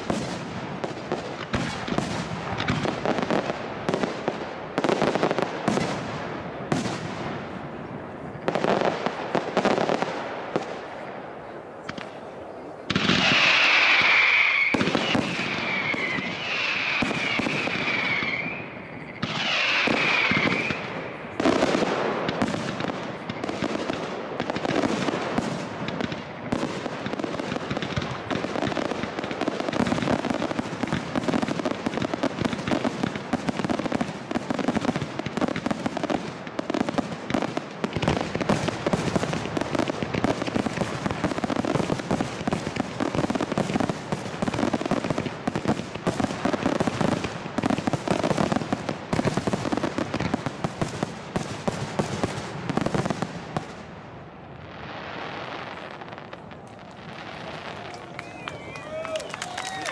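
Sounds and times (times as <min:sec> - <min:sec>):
fireworks crackling: 0:00.0 - 0:59.9
fireworks launches and bursts: 0:00.0 - 0:59.9
fireworks whistling: 0:11.8 - 0:53.7, 0:54.8 - 0:59.9.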